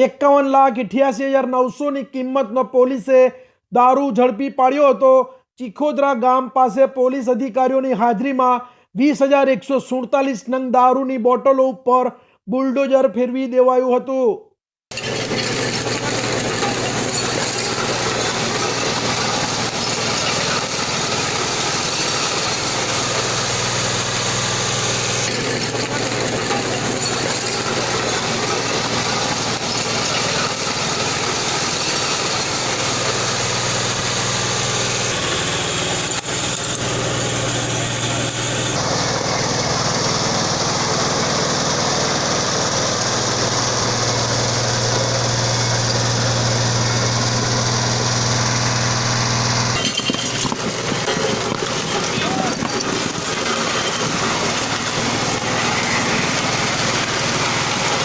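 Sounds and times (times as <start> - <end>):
bulldozer diesel engine running: 14.9 - 58.0.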